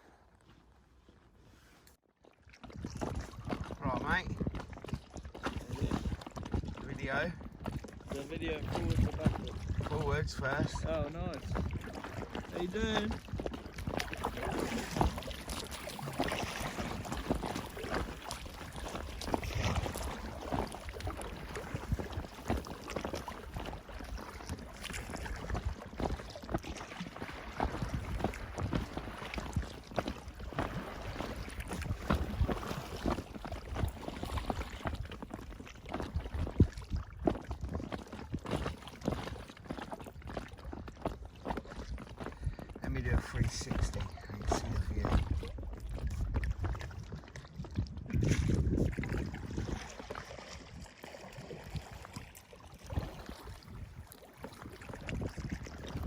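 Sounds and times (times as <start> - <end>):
paddle splashes: 0.0 - 56.0
water slapping against hull: 1.9 - 56.0
wind rumbling on microphone: 2.6 - 56.0
wind gusting on microphone: 8.1 - 12.0, 42.4 - 50.1.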